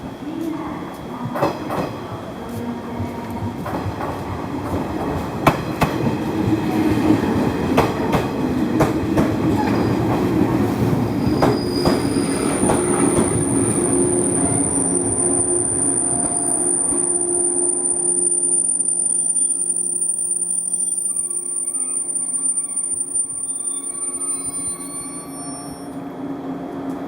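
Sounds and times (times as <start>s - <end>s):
train rumbling on rails: 0.0s - 27.0s
high wheel squeal: 11.2s - 26.0s.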